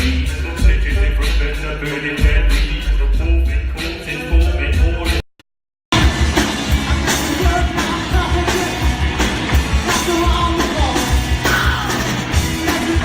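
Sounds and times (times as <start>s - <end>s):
heavy drum and bass beat: 0.0s - 5.2s, 5.9s - 13.0s
live rock band playing: 5.9s - 13.0s
person singing: 6.8s - 9.0s, 9.8s - 13.0s.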